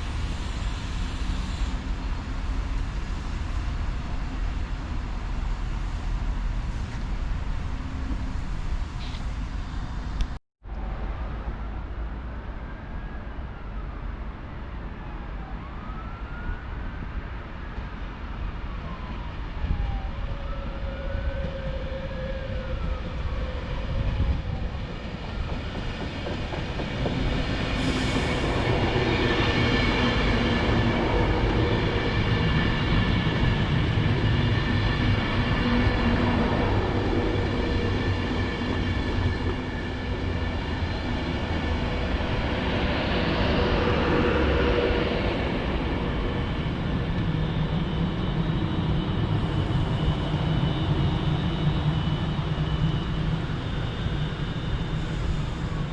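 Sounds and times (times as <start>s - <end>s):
train rumble: 0.0s - 12.2s, 19.9s - 55.9s
train whining: 19.9s - 55.9s
high-pitched train tones: 20.5s - 55.9s.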